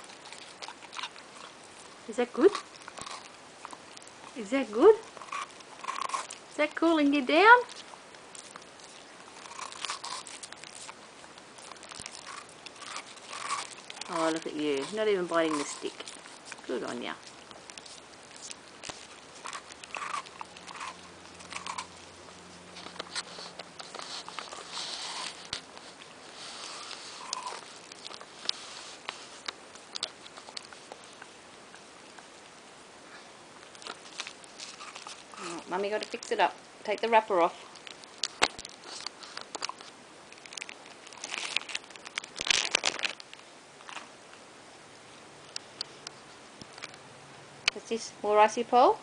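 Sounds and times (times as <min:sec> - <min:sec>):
dog licking and lapping: 0:00.0 - 0:32.3
plastic wrapper crinkling: 0:07.4 - 0:31.1, 0:37.7 - 0:44.1
dog sniffing: 0:07.6 - 0:31.2.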